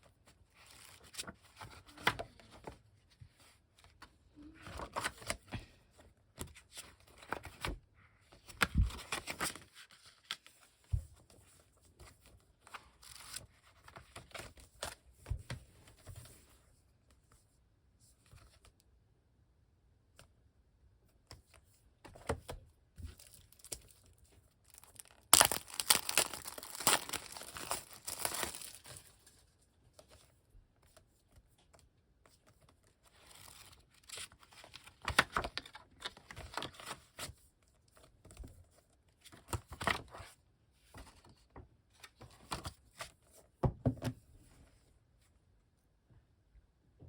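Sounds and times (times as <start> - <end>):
packaging torn and crinkled: 23.2 - 23.9, 24.6 - 29.1.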